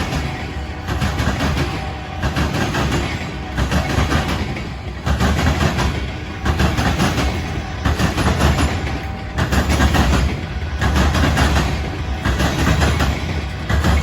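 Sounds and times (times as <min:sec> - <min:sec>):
train low rumble: 0:00.0 - 0:14.0
train wheels clattering: 0:00.0 - 0:14.0.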